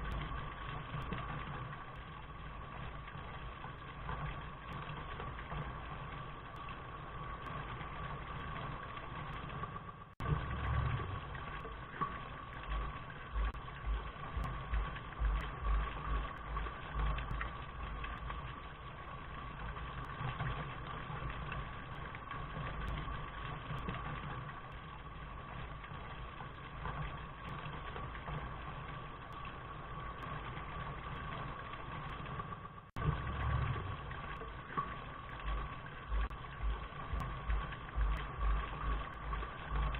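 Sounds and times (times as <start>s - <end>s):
constant hum: 0.0s - 39.9s
low rumble: 10.2s - 28.7s, 33.0s - 39.9s.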